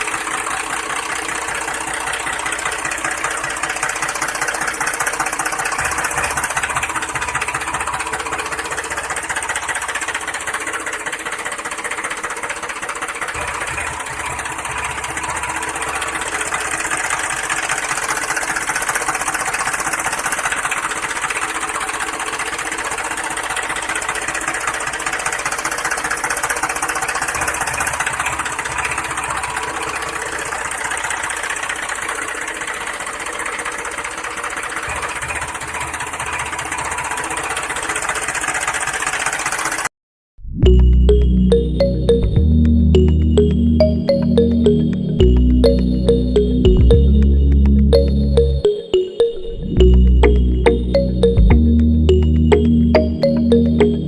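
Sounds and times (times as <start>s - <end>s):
motor running with knocking rattle: 0.0s - 39.9s.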